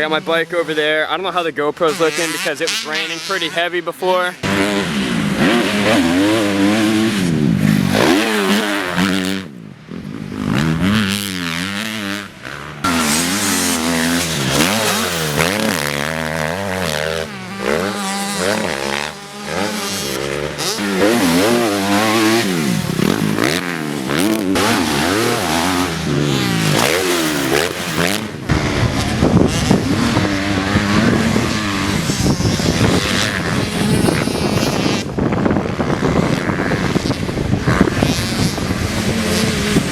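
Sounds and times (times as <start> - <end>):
dirt bike engine revving: 0.0 - 39.9
wind buffeting microphone: 20.8 - 39.9.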